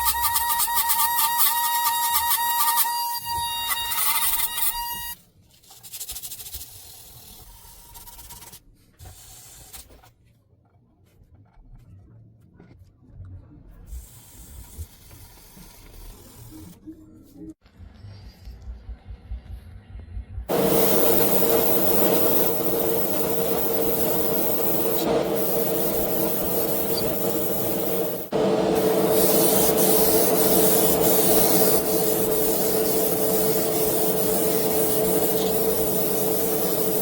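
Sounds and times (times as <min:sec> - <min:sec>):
power tool hissing and humming: 0:20.5 - 0:37.0.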